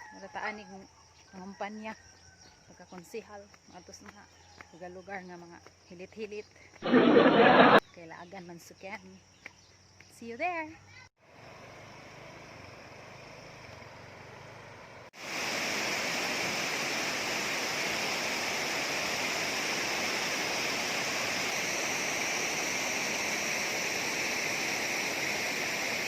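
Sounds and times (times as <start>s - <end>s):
water rushing over a dam: 15.2s - 26.0s.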